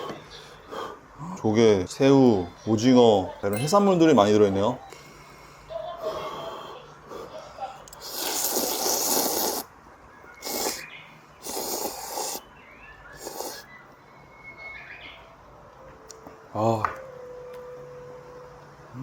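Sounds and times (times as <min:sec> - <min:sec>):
person slurping noodles: 0:08.0 - 0:09.7, 0:10.4 - 0:12.4, 0:13.2 - 0:13.7.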